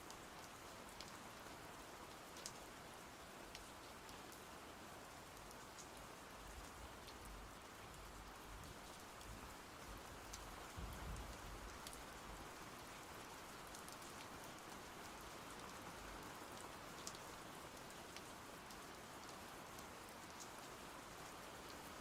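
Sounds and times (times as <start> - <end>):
faint steady rainfall: 0.0 - 22.0
raindrop ticks: 3.5 - 3.7, 10.3 - 12.0, 17.0 - 17.2, 18.1 - 20.6.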